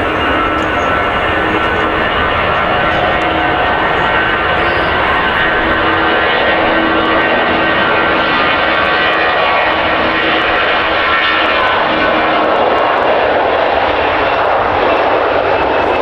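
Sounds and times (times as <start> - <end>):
jet airliner passing: 0.0 - 16.0.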